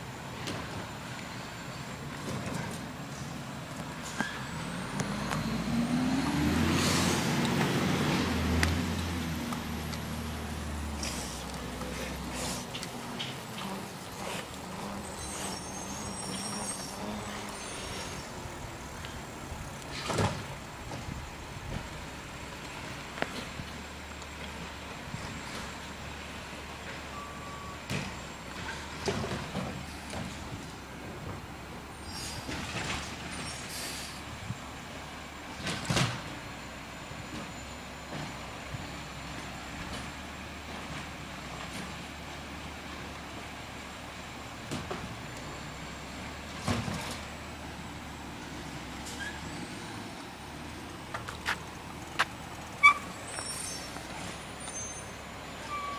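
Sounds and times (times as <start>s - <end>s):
high-pitched squealing: 12.4s - 18.4s.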